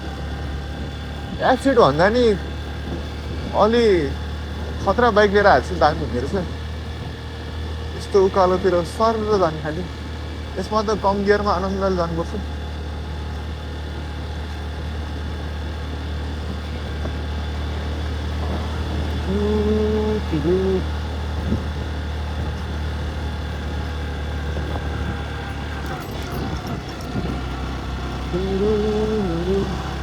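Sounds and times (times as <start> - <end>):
motorcycle engine climbing uphill: 0.0 - 30.0
voice humming: 18.5 - 21.8, 28.0 - 30.0.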